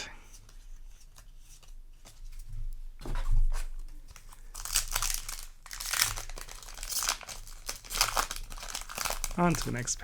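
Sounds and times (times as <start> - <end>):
foil wrapper crinkling: 4.1 - 10.0.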